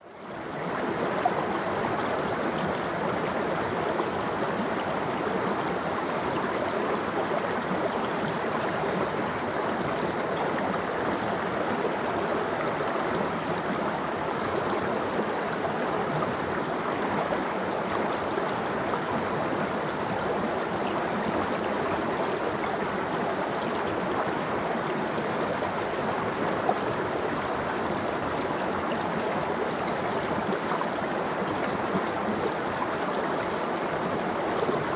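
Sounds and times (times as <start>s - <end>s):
stream rushing: 0.1s - 34.9s.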